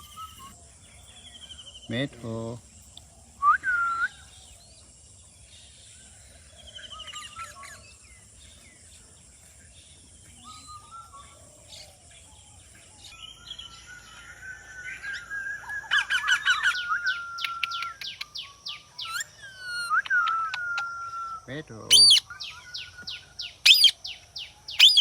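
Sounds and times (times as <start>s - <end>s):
parrot chirps: 0.0s - 0.6s, 15.6s - 23.0s, 23.6s - 24.0s, 24.7s - 25.0s
parrot whistled call: 0.0s - 0.6s, 13.6s - 23.0s, 23.6s - 24.0s, 24.8s - 25.0s.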